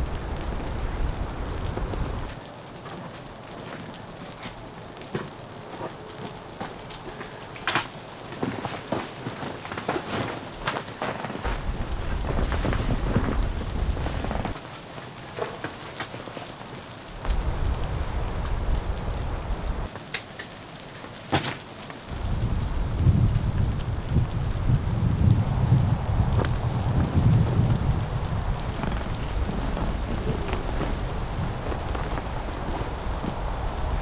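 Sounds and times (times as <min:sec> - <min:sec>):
driven snow ticking: 0:00.0 - 0:02.4, 0:06.3 - 0:19.9, 0:22.0 - 0:34.0
wind gusts rumbling: 0:00.0 - 0:02.4, 0:11.4 - 0:14.7, 0:16.8 - 0:19.9, 0:22.0 - 0:34.0.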